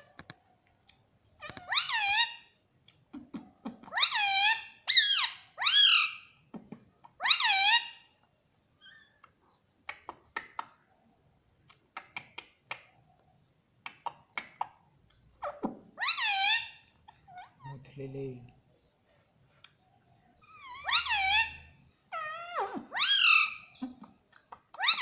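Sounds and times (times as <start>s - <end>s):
parakeet calling: 1.4s - 2.5s, 7.2s - 8.1s, 15.4s - 17.7s, 20.4s - 23.8s.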